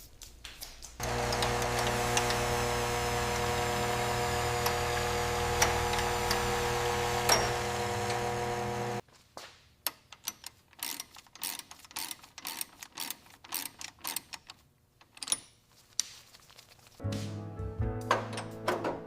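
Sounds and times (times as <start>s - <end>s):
machine hum: 1.0s - 9.0s
tools clicking on metal parts: 9.8s - 15.6s.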